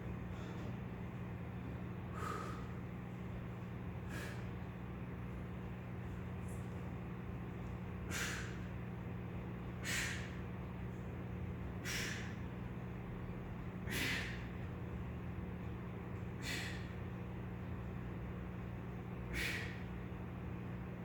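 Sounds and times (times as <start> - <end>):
steady low hum: 0.0 - 21.0
man breathing out forcefully: 2.1 - 2.8, 4.0 - 4.5, 8.0 - 8.7, 9.8 - 10.4, 11.8 - 12.4, 13.8 - 14.5, 16.4 - 17.0, 19.3 - 19.9.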